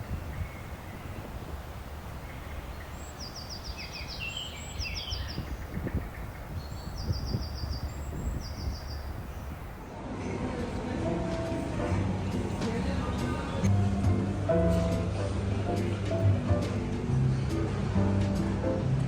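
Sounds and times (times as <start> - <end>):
songbird trilling: 0.0 - 9.8.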